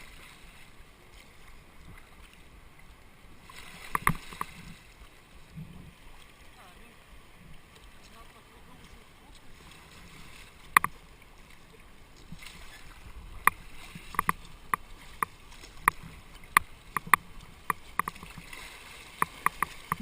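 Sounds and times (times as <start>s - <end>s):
water rushing along hull: 0.0s - 20.0s
paddles knocking against boat: 3.9s - 4.7s, 13.4s - 18.5s, 19.1s - 20.0s.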